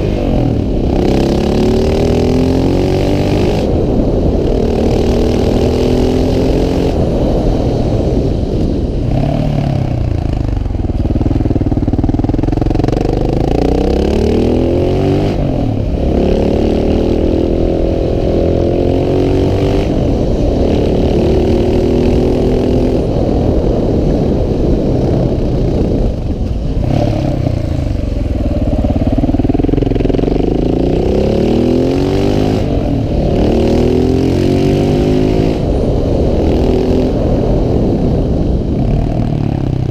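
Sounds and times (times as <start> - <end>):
single-cylinder motorcycle engine: 9.9 - 22.6, 23.8 - 33.4.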